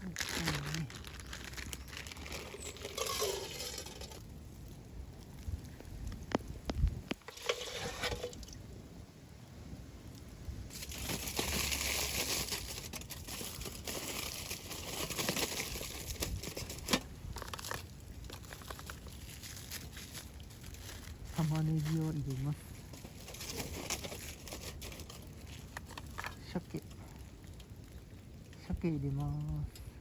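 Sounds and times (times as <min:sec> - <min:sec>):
aluminium foil crinkling: 0:00.0 - 0:06.4, 0:07.0 - 0:08.6, 0:10.7 - 0:29.8.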